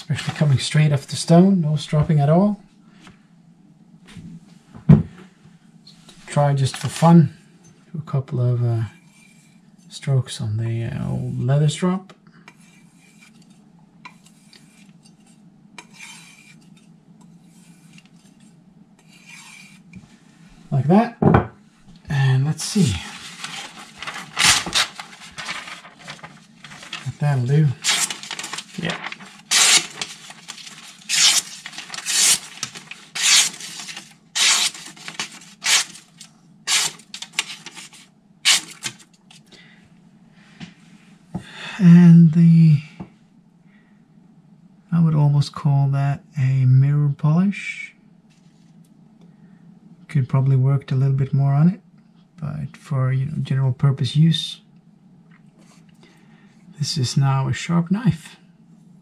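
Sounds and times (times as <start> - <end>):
knife blade rasping strokes: 12.5 - 20.0, 29.4 - 36.1, 36.7 - 38.9.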